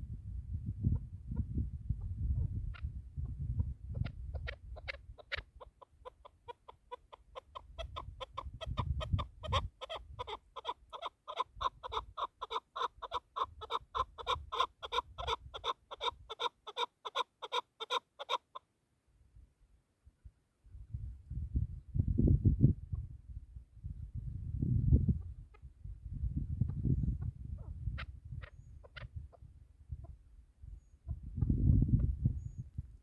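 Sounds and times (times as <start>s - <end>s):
partridge chuk calls: 2.4s - 18.6s, 26.7s - 29.4s.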